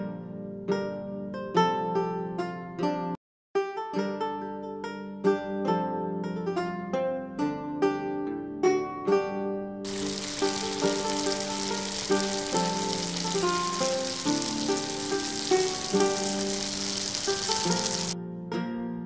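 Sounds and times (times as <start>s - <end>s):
bread deep frying in oil: 9.9s - 18.2s.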